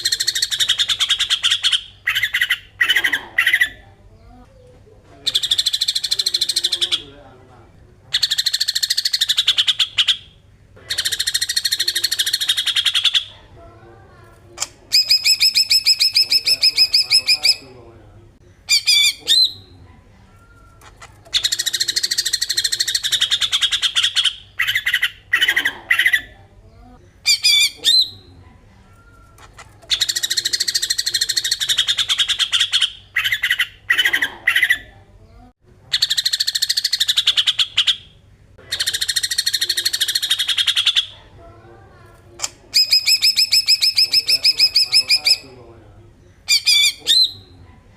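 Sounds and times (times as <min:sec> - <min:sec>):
bird harsh chattering: 0:00.0 - 0:03.8, 0:05.2 - 0:07.2, 0:08.1 - 0:13.5, 0:14.6 - 0:17.8, 0:18.7 - 0:19.7, 0:20.8 - 0:26.4, 0:27.2 - 0:28.3, 0:29.3 - 0:34.9, 0:35.9 - 0:41.3, 0:42.4 - 0:45.6, 0:46.4 - 0:47.5
bird clear repeated notes: 0:14.6 - 0:17.8, 0:42.4 - 0:45.6.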